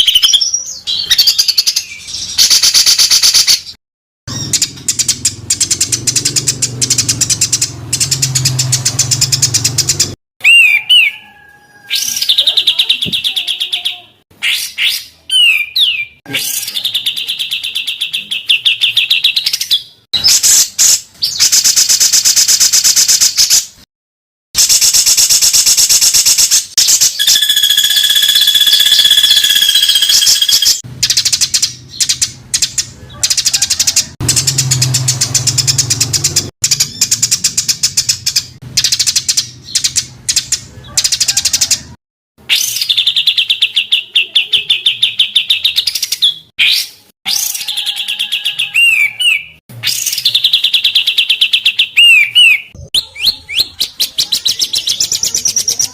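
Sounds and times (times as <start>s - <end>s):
rattling bird song trills: 4.3s - 11.2s, 26.8s - 41.8s.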